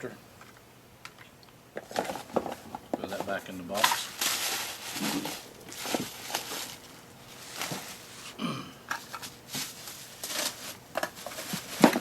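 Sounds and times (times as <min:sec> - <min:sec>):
cardboard boxes being handled: 0:09.5 - 0:12.0.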